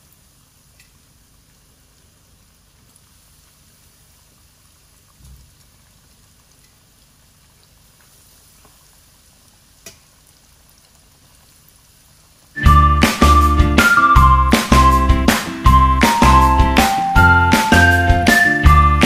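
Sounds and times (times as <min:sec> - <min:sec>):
chicken frying in hot oil: 0:00.0 - 0:12.6
loud music: 0:12.6 - 0:19.0.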